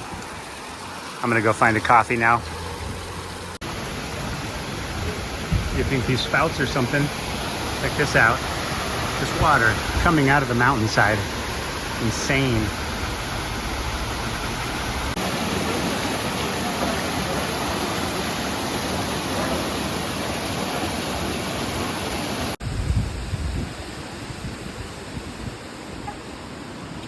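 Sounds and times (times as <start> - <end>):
spring water gushing: 0.0 - 22.6
low thumps: 5.4 - 6.0.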